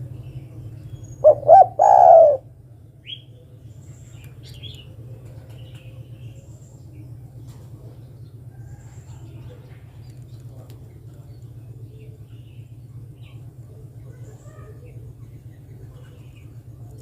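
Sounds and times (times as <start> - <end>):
small birds chirping: 0.0 - 17.0
steady low hum: 0.0 - 17.0
dove cooing: 1.2 - 2.6.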